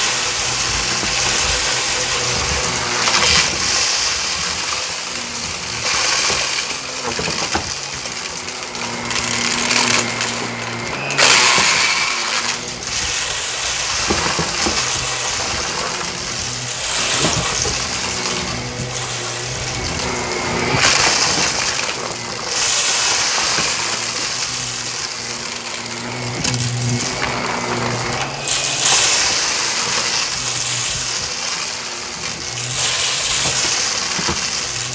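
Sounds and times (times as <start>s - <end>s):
debris crunching and clicking: 0.0s - 34.9s
vacuum cleaner on carpet: 0.0s - 34.9s.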